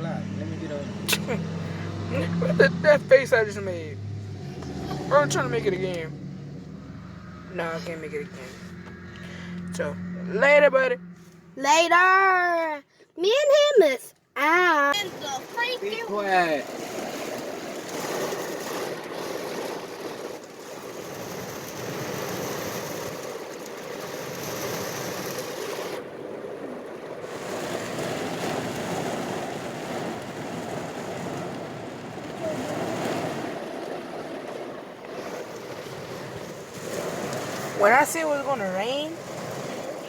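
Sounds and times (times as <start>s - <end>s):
rain falling: 14.9s - 40.0s.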